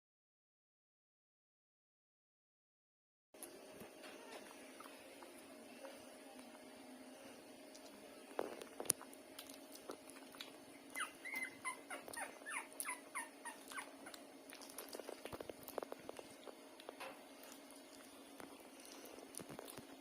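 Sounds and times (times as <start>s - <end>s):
puppies whimpering: 10.7s - 15.1s.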